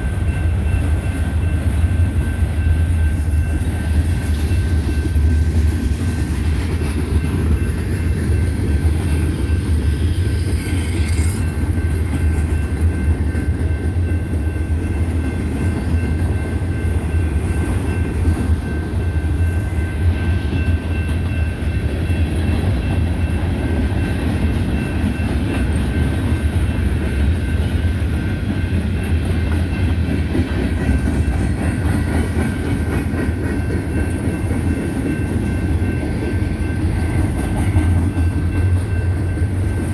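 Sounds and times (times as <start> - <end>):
train wheels rumbling on rails: 0.0 - 39.9
wheels clickety-clack: 0.0 - 39.9.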